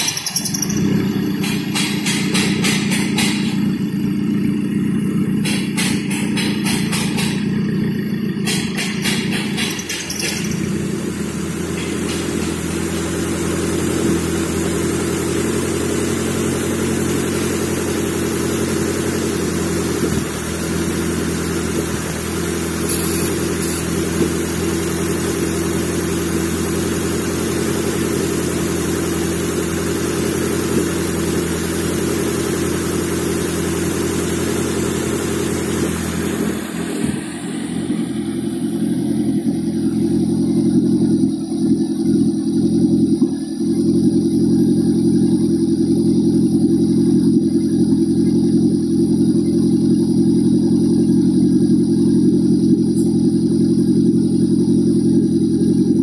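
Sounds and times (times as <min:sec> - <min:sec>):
fast clicking rattle: 0:00.0 - 0:00.8, 0:09.5 - 0:10.6
car engine running steadily: 0:00.0 - 0:56.0.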